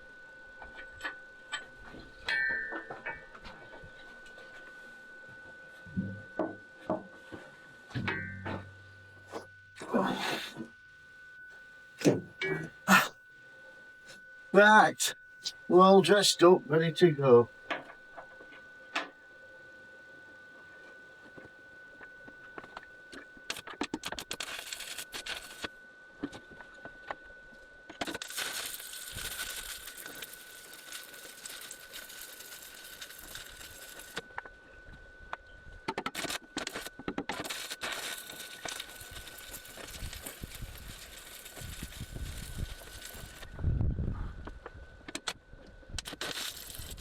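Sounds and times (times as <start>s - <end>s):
steady high tone: 8.0s - 17.6s
arc welding crackling: 22.6s - 25.7s, 28.0s - 34.3s, 36.0s - 43.6s, 45.2s - 47.0s.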